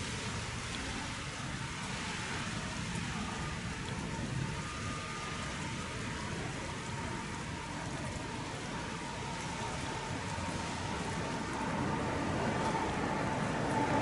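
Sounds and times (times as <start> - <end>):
distant jet engines: 0.0 - 14.0.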